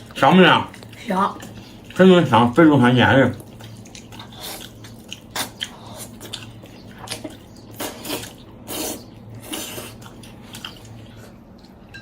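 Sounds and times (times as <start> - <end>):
person chewing meat: 0.0 - 2.0, 3.3 - 12.0.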